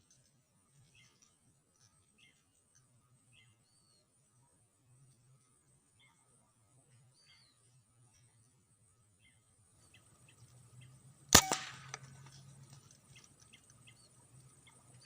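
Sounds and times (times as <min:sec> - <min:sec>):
air rifle shot crack: 0:11.3 - 0:12.3.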